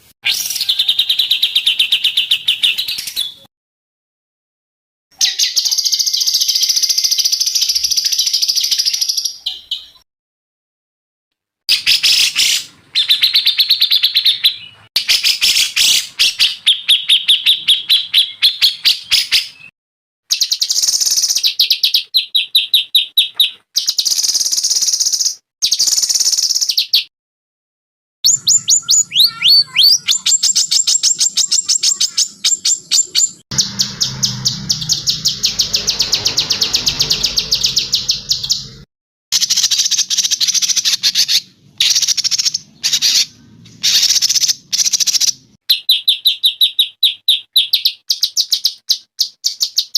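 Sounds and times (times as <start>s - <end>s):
songbirds trilling: 28.3s - 38.8s.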